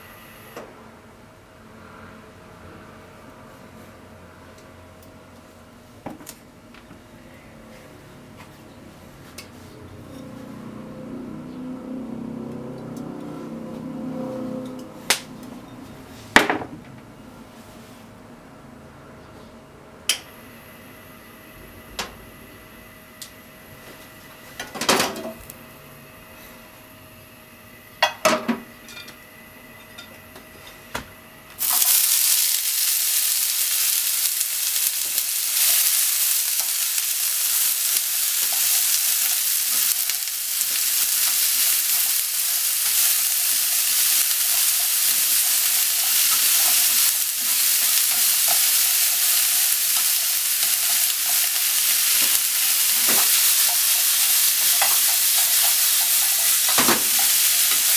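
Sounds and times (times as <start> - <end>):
chopsticks stirring food in pan: 31.6 - 57.9
vegetables sizzling in hot oil: 31.6 - 57.9.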